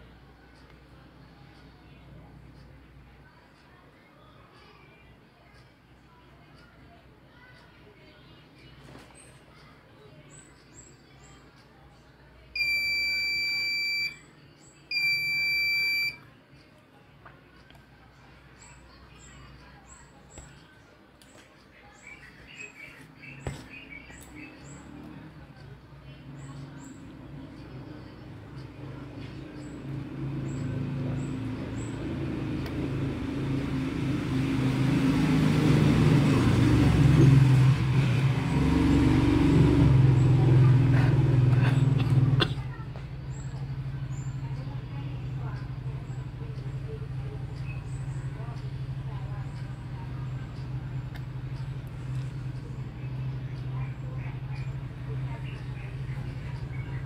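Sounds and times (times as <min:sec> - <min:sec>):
vehicle engine running: 0:22.1 - 0:57.0.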